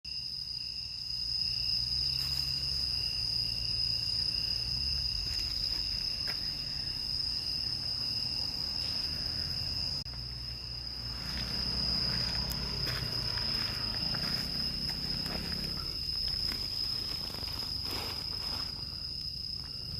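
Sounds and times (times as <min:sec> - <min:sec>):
crickets chirring: 0:00.1 - 0:19.9
low wind rumble: 0:01.0 - 0:19.9.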